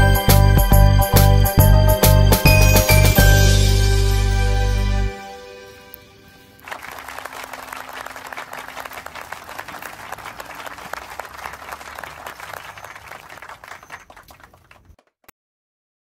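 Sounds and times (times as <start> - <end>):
audience applauding: 6.6 - 15.2.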